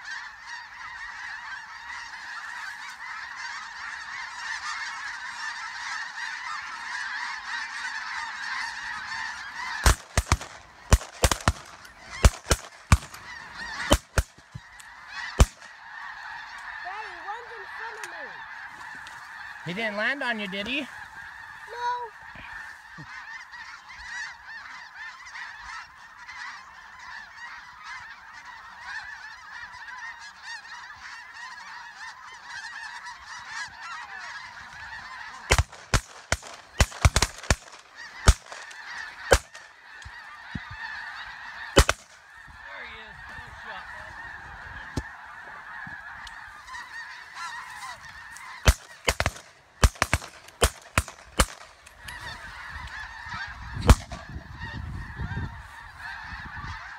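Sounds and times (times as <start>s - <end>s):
geese honking: 0.0s - 56.9s
shotgun shots: 9.8s - 13.2s, 15.4s - 15.7s, 35.5s - 38.7s, 41.8s - 42.2s, 48.6s - 51.7s.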